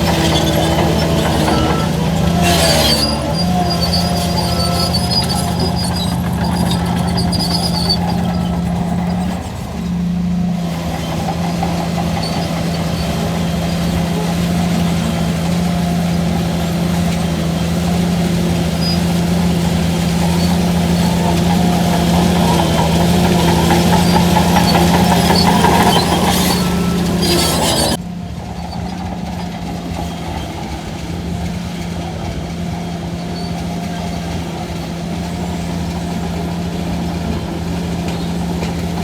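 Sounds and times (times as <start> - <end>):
thin high squeal: 0.0 - 9.7, 18.5 - 28.0
bulldozer diesel engine running: 0.0 - 39.0.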